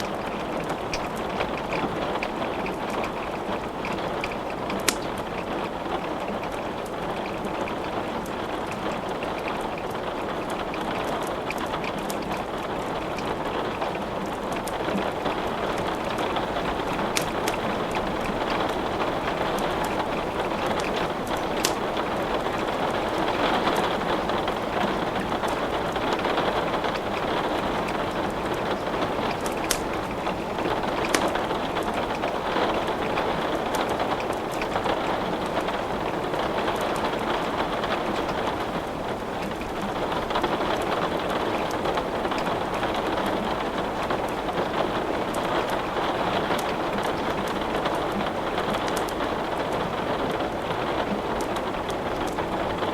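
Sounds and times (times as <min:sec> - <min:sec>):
steady rain hissing: 0:00.0 - 0:52.9
wood crackling in a fireplace: 0:00.0 - 0:52.9.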